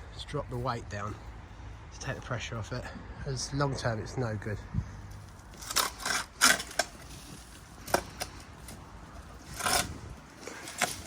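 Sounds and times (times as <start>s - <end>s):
debris scraping on concrete: 5.1s - 11.0s.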